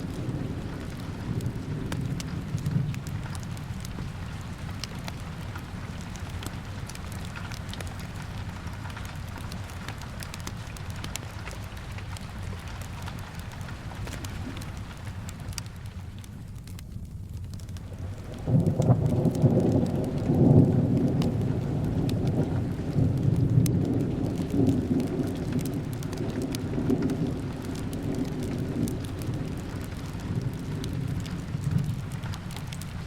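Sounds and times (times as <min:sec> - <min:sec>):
rolling thunder: 0:00.0 - 0:05.9, 0:18.0 - 0:33.0
steady rain: 0:00.0 - 0:33.0.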